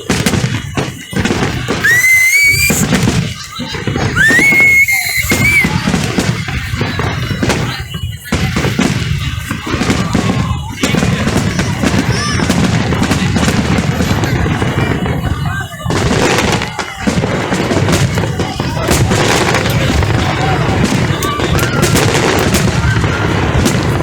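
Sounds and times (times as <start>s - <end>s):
fireworks bangs and crackling: 0.0s - 24.0s
voices: 1.8s - 2.9s, 3.7s - 5.9s.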